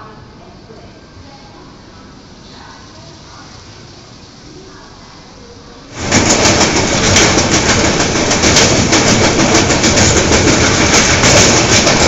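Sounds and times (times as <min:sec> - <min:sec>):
station background noise: 0:00.0 - 0:12.0
train rumbling over bridge: 0:05.7 - 0:12.0
wheels clicking on rail joints: 0:06.0 - 0:12.0.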